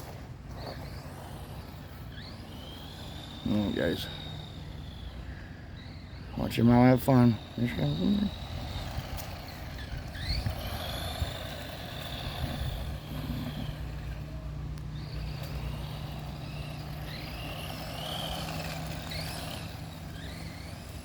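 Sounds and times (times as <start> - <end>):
remote control car motor whine: 0.0 - 21.0
low hum and rumble: 7.3 - 21.0.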